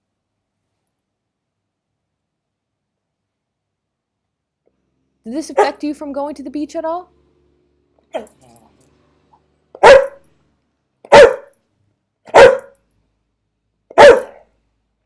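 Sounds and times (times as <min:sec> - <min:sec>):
dog barking: 0:05.5 - 0:05.8, 0:09.8 - 0:10.3, 0:11.1 - 0:11.6, 0:12.3 - 0:12.8, 0:13.9 - 0:14.5.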